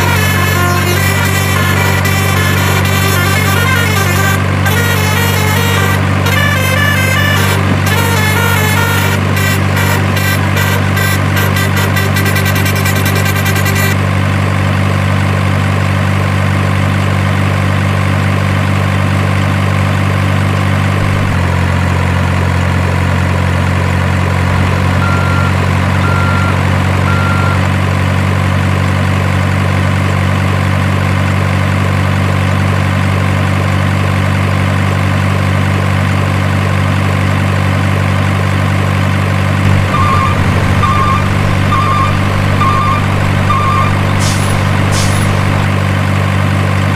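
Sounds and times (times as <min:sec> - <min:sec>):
diesel truck engine idling: 0:00.0 - 0:46.9
reversing beeps: 0:25.0 - 0:27.7, 0:39.7 - 0:45.7
short beeps: 0:25.0 - 0:27.7, 0:39.7 - 0:45.7.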